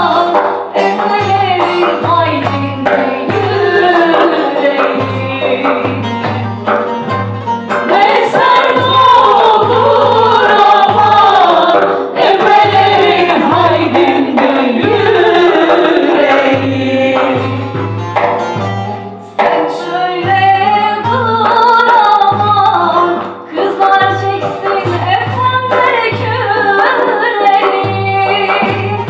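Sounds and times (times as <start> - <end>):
steady drum beat: 0.0 - 29.0
folk choir singing: 1.8 - 6.0, 7.8 - 17.7.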